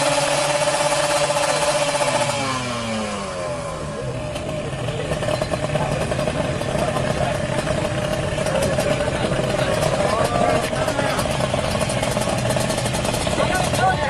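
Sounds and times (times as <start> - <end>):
motorcycle engine revving and idling: 0.0 - 14.0.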